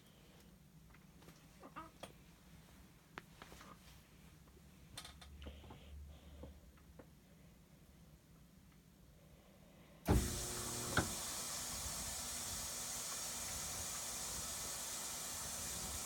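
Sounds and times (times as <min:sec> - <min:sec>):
washing machine clunk: 0:10.1 - 0:14.2
water rushing into washing machine: 0:10.1 - 0:16.0.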